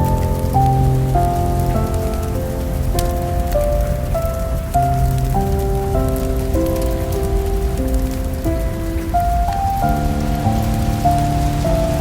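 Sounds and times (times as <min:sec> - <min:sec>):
rain pattering: 0:00.0 - 0:12.0
soft slow background music: 0:00.0 - 0:12.0.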